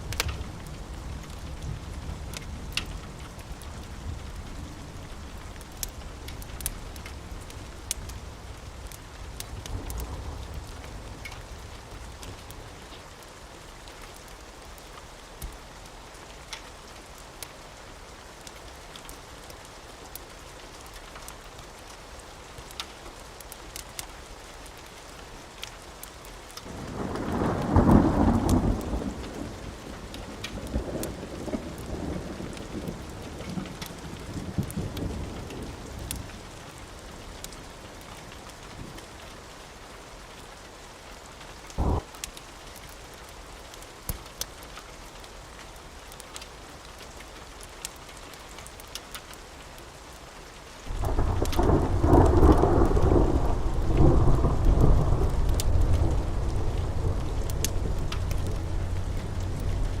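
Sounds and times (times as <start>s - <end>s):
steady rain: 0.0s - 60.0s
wood fire crackling: 0.0s - 60.0s
rolling thunder: 41.8s - 42.1s, 50.9s - 60.0s.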